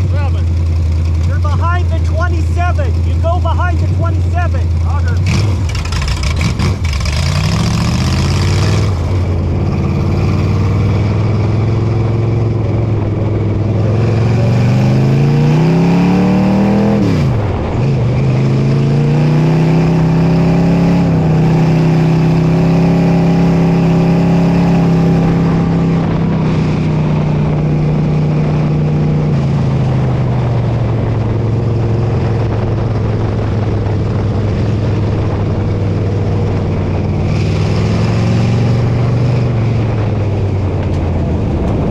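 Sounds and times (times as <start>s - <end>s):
race car engine revving: 0.0s - 41.9s.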